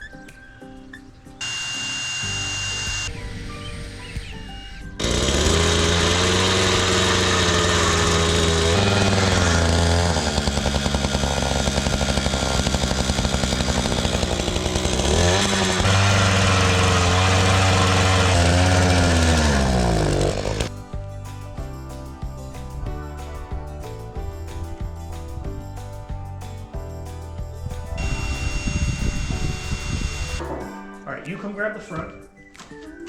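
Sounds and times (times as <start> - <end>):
small gasoline engine running: 1.4 - 20.8, 28.0 - 30.5.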